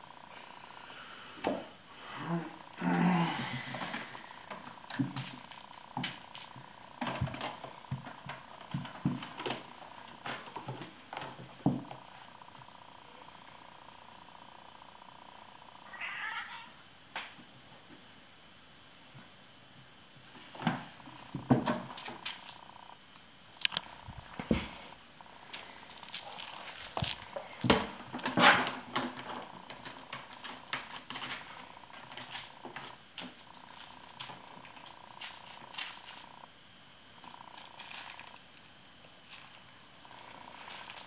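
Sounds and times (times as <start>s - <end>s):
kitten purring: 29.1s - 36.5s, 37.2s - 38.4s, 39.2s - 41.0s.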